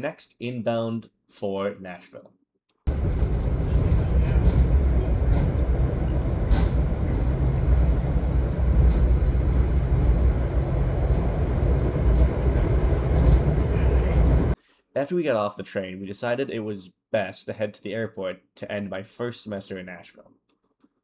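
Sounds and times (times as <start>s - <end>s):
train rumbling: 2.9s - 14.6s.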